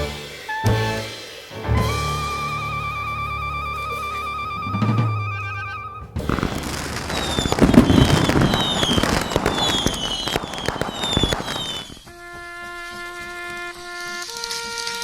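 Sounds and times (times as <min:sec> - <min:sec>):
dense crackling and popping: 0:06.2 - 0:12.1
short falling whistles: 0:06.3 - 0:12.0.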